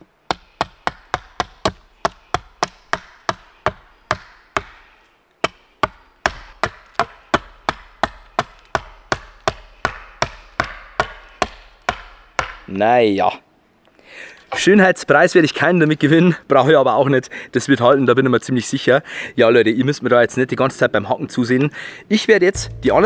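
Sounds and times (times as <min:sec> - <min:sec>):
hatchet chopping wood: 0:00.3 - 0:12.7.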